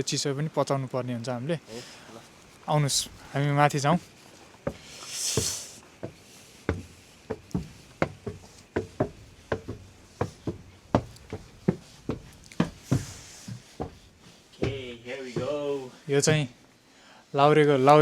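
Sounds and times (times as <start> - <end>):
footsteps going up steps: 2.4 - 16.8.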